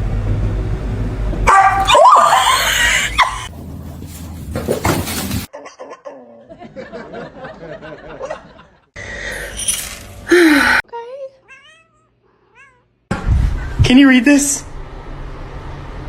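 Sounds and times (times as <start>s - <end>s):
person laughing: 2.2s - 3.5s.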